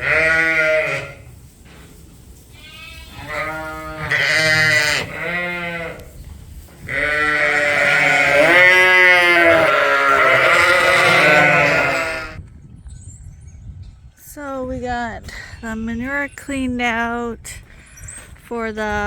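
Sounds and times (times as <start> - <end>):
sheep bleating: 0.0 - 1.2, 2.6 - 6.0, 6.9 - 12.4
many sheep calling: 0.0 - 1.3, 2.6 - 6.2, 6.8 - 12.4.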